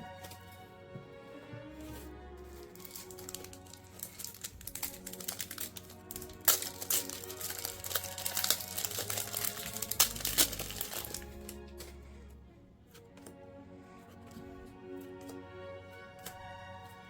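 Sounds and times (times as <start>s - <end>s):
background music: 0.0s - 17.0s
plastic wrapper crinkling: 2.7s - 11.9s.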